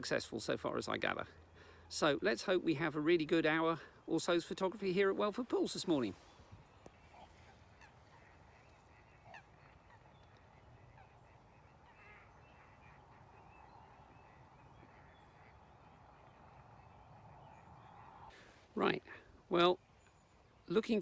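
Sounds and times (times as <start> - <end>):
quiet lakeside ambience: 0.0 - 21.0
distant geese honking: 5.1 - 18.6.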